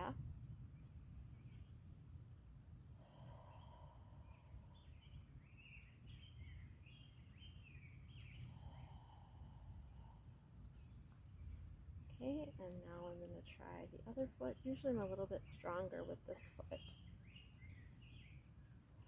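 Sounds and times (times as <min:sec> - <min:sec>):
steady low rumble: 0:00.0 - 0:06.9, 0:08.0 - 0:18.0
songbird chirping: 0:03.5 - 0:09.1, 0:10.7 - 0:19.0.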